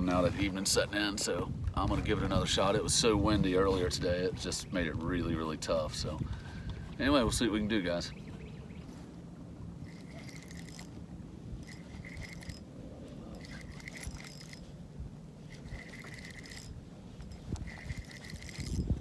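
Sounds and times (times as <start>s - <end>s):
fishing reel clicker ticking: 9.9s - 10.9s, 11.6s - 12.6s, 13.3s - 14.6s, 15.5s - 16.7s, 17.5s - 18.8s.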